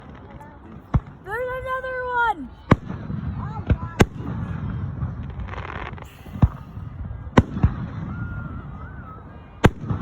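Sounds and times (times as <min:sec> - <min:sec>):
fireworks bangs: 0:02.6 - 0:10.0.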